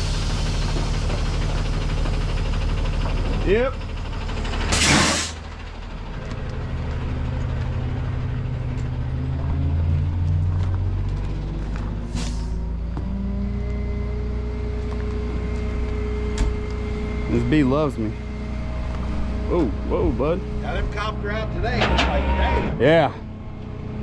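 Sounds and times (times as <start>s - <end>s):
truck engine running: 0.0s - 24.0s
air hiss burst: 4.7s - 5.4s.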